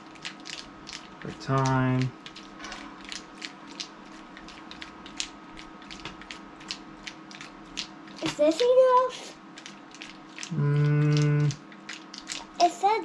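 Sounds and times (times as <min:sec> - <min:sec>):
plastic clattering rhythmically: 0:00.0 - 0:10.5
liquid sloshing in plastic toy: 0:00.1 - 0:13.0.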